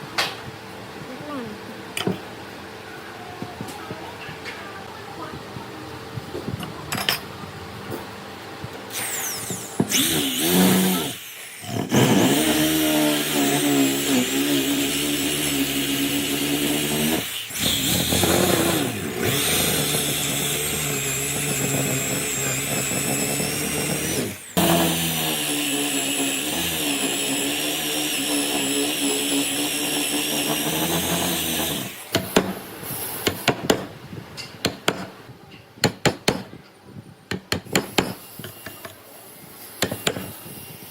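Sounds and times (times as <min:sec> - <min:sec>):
power tool cutting wood: 0:08.9 - 0:33.9, 0:39.8 - 0:40.9.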